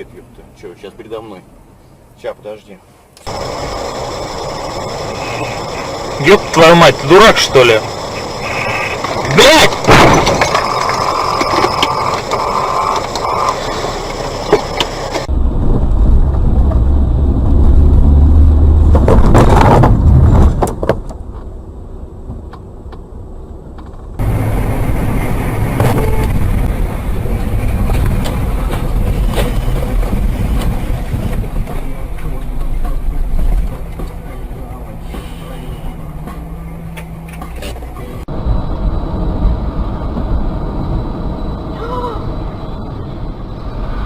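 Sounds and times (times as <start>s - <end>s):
car engine and road rumble: 0.0s - 44.0s
sharp clicks: 9.0s - 15.3s.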